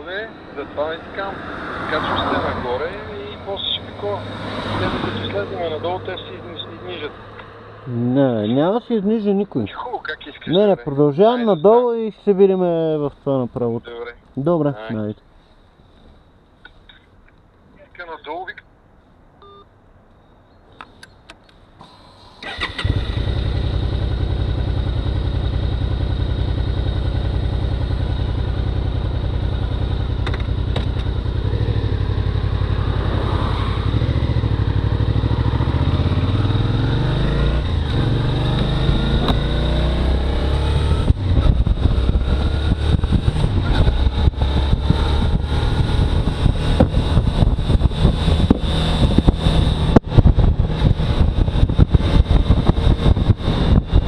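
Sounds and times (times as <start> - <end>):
motorcycle engine revving: 22.4 - 54.0
wind buffeting microphone: 40.9 - 54.0.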